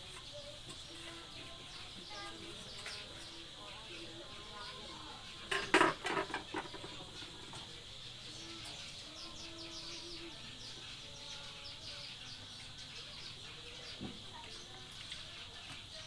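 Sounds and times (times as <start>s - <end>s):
birds chirping: 0.0s - 16.0s
light clatter: 5.4s - 7.8s.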